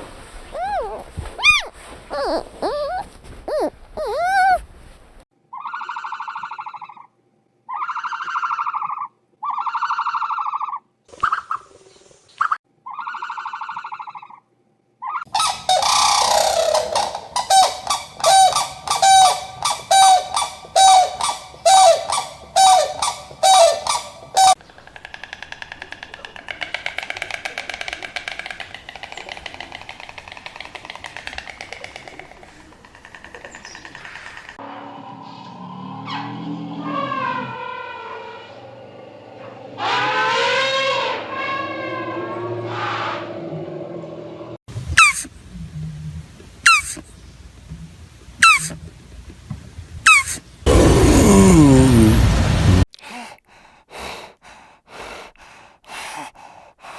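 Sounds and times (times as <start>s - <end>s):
animal honking calls: 0.0s - 4.9s, 15.4s - 24.6s.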